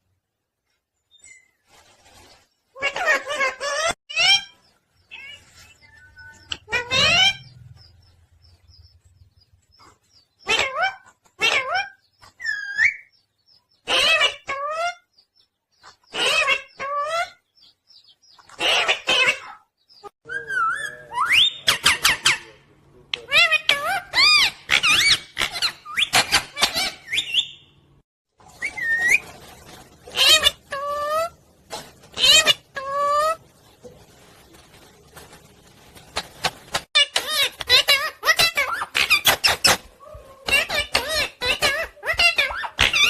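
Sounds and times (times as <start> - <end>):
parrot squeaky calls: 2.8 - 7.6, 10.4 - 13.2, 13.8 - 15.1, 16.1 - 17.4, 18.4 - 22.5, 23.3 - 27.8, 30.1 - 31.4, 32.2 - 33.4, 37.0 - 43.0.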